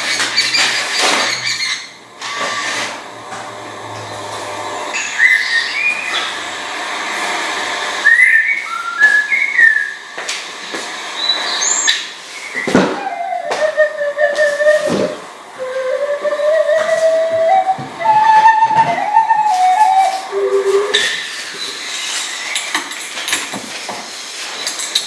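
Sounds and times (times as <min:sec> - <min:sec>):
bird whistled calls: 0:04.9 - 0:06.5, 0:08.0 - 0:10.2, 0:11.2 - 0:22.2.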